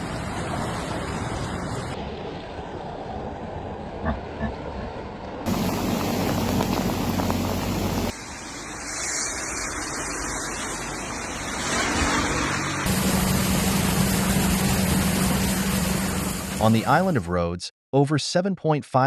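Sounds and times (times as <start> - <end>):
steady rushing noise: 0.0 - 17.1
vehicle running: 4.0 - 8.8, 9.9 - 16.7.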